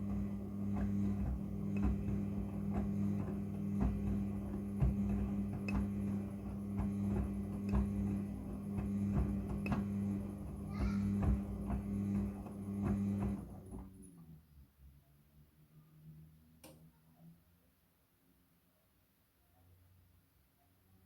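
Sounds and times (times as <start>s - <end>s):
washing machine drum knocking: 0.0s - 13.4s
washing machine motor hum: 0.0s - 14.0s.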